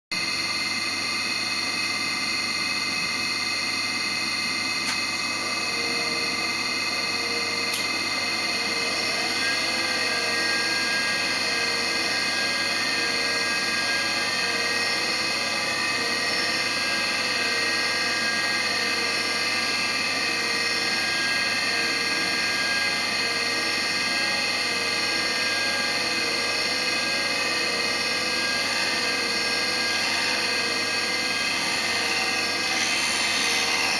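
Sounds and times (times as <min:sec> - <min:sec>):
grinder spindle whine: 0:00.1 - 0:33.9.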